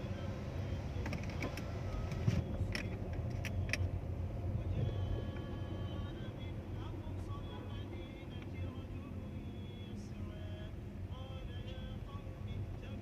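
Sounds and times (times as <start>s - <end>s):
rumble of passing vehicles: 0.0s - 13.0s.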